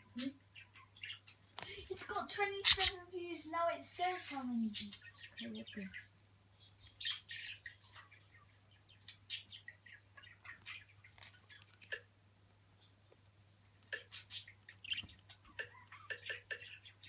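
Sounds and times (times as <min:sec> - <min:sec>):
budgerigar chirping: 0:13.9 - 0:17.0.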